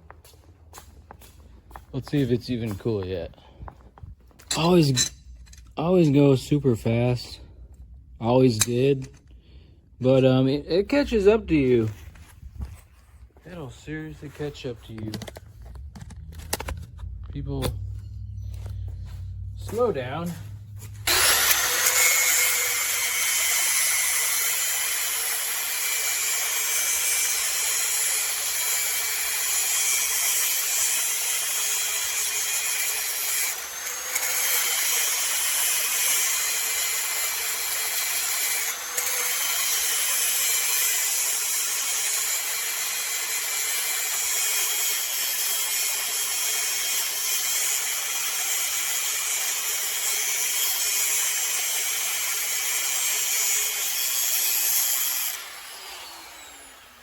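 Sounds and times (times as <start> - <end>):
power tool motor humming and hissing: 19.6 - 57.0.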